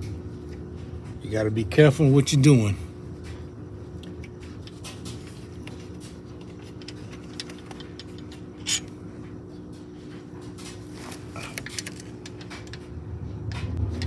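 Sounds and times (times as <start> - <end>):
steady low hum: 0.0 - 14.0
small metal parts clicking: 6.8 - 8.9.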